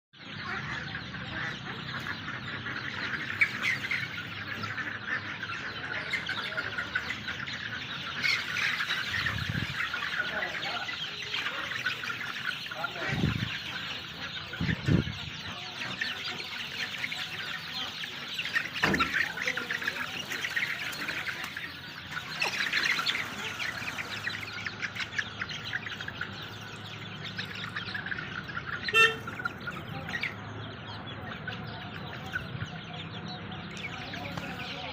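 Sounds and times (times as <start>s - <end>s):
birds chirping: 0.1s - 34.9s
sharp bird call: 28.8s - 29.5s.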